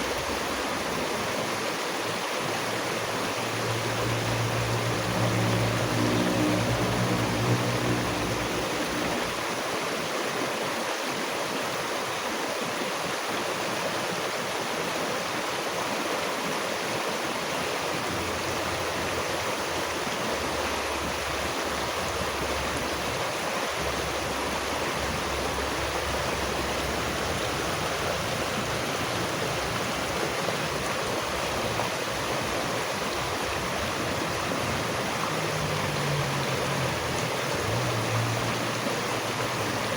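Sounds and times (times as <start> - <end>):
stream rushing: 0.0 - 39.9
low hum: 3.3 - 9.4.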